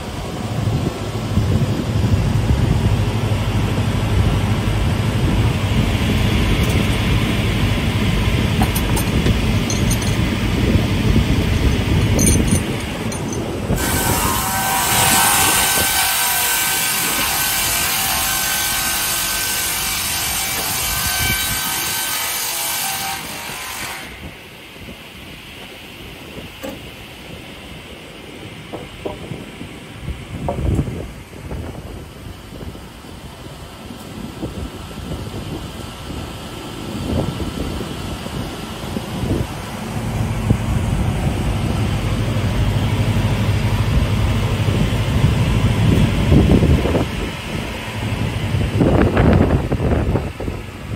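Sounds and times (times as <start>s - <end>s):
saw cutting through timber: 13.7s - 24.3s.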